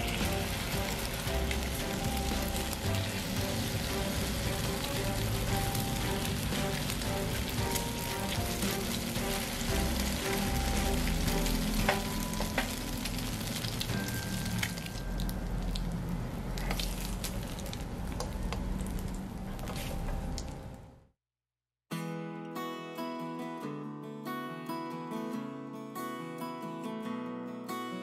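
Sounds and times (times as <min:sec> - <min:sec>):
food sizzling in oil: 0:00.0 - 0:17.6.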